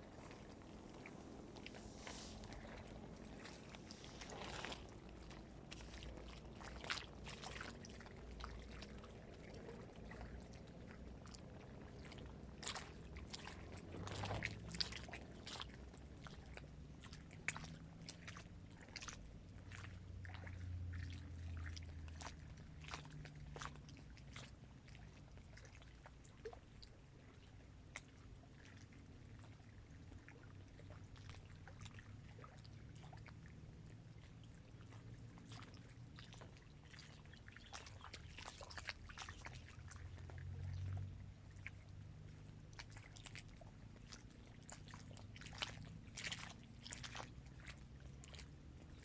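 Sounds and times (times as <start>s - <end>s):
low rumble: 0.0s - 22.7s
small waves lapping: 0.0s - 49.0s.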